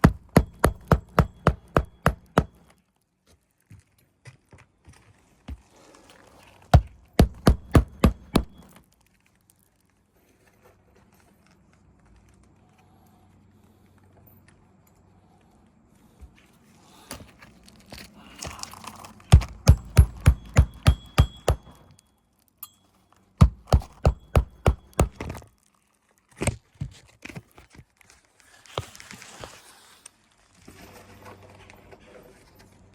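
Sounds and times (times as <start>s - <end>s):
hammer driving nails into shingles: 0.0s - 2.7s, 6.8s - 8.8s, 18.4s - 21.9s, 23.4s - 25.4s.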